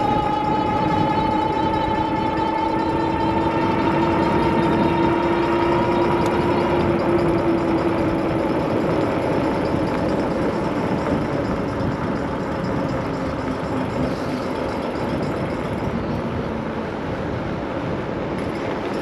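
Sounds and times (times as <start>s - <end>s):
electric bike whine: 0.0s - 19.0s
road noise: 0.0s - 19.0s
wind noise: 0.0s - 19.0s.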